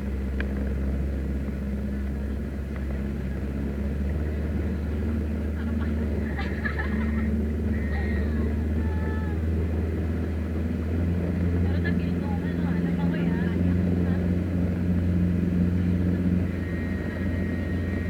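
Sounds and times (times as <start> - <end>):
motorboat engine droning: 0.0 - 18.0
faint voices: 3.2 - 9.8, 11.2 - 18.0.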